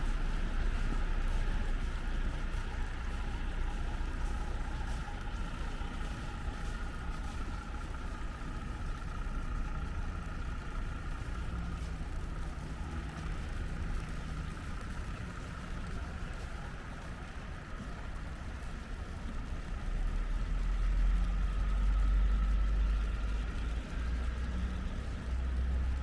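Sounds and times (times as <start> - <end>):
constant background hum: 0.0 - 26.0
vehicle engines running: 0.0 - 26.0.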